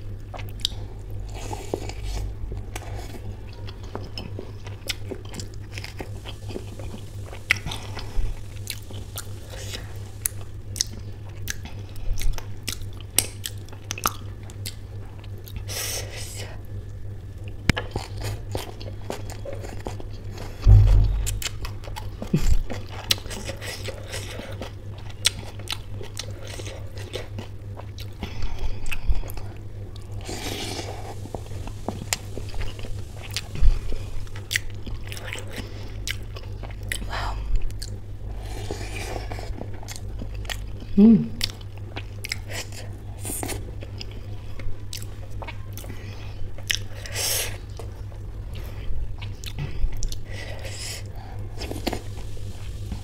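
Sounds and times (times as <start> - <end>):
steady low hum: 0.0 - 53.0
wet chewing and mouth clicks: 0.2 - 15.7, 30.8 - 38.0, 38.7 - 44.3, 44.9 - 48.0, 48.6 - 53.0
low thumps: 20.6 - 21.8.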